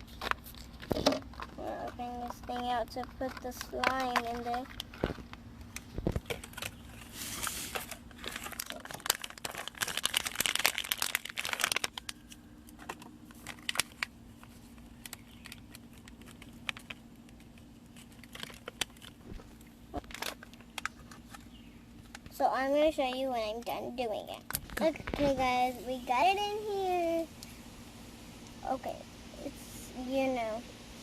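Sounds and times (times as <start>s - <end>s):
plastic crinkling and clicking: 0.0s - 22.4s, 24.3s - 25.4s.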